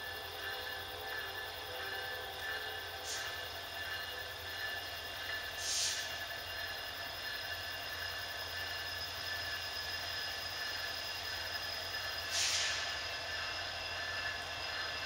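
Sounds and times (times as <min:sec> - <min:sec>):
low train rumble: 0:00.0 - 0:15.0
train wheel squeal: 0:00.0 - 0:15.0
short hiss: 0:12.3 - 0:13.0.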